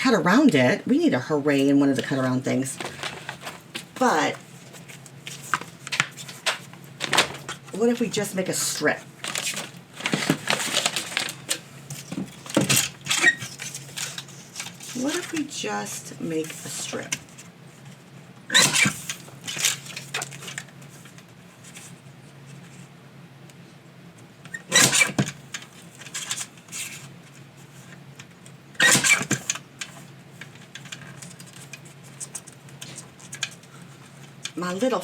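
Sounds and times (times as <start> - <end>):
low steady hum: 0.0 - 35.0
paper handling noises: 1.9 - 22.9, 25.1 - 35.0
paper scraping and rustling: 2.0 - 7.8, 9.1 - 15.6, 25.0 - 28.0.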